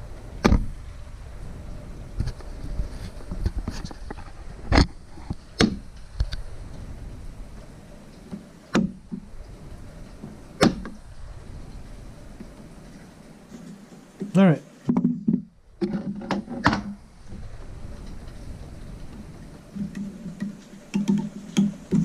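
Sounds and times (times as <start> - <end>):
small clicks and rustles: 2.1 - 11.0.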